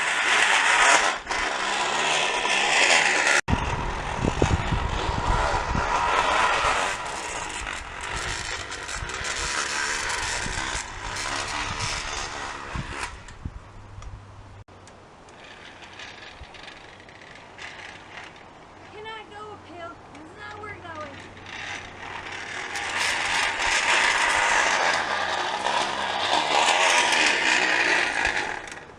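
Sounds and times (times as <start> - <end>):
can rattling against bicycle spokes: 21.2 - 28.9.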